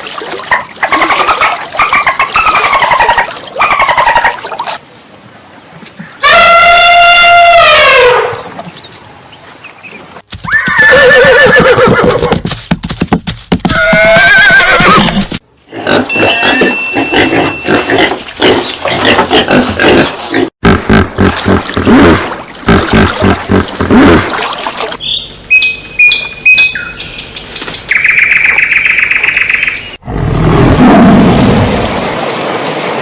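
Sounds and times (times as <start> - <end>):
horse neighing: 10.4 - 12.4.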